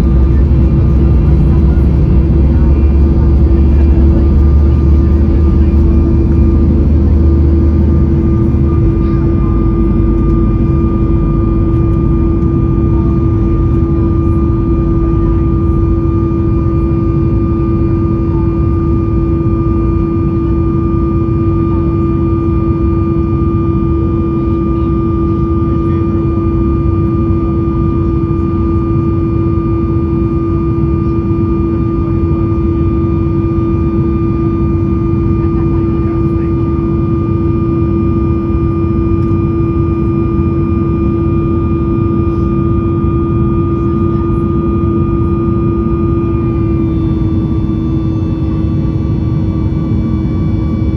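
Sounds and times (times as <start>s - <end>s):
steady hum: 0.0s - 21.4s
deep airflow rumble: 0.0s - 25.2s, 33.4s - 50.9s
jet engine drone: 0.0s - 50.9s.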